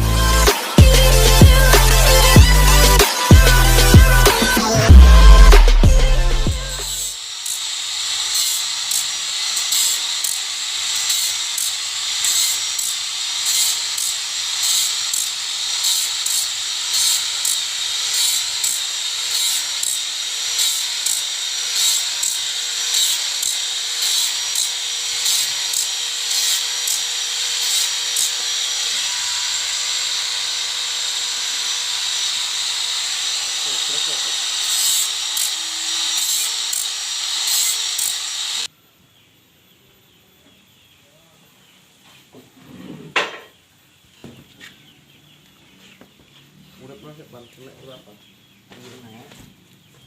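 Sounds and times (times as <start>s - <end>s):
saw cutting log: 0.0s - 38.7s.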